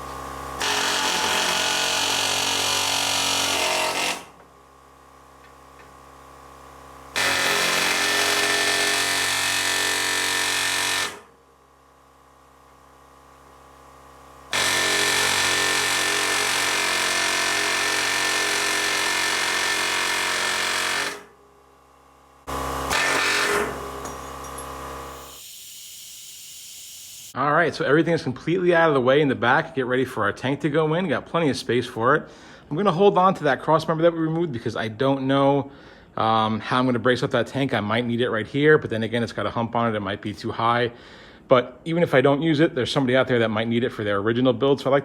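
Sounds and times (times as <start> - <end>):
power tool high whine: 0.2 - 4.3, 7.1 - 11.2, 14.5 - 21.3, 22.5 - 27.4.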